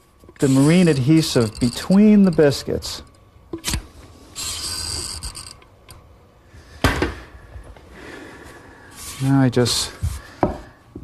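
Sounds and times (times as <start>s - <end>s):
caulking gun ratcheting clicks: 0.8s - 2.7s.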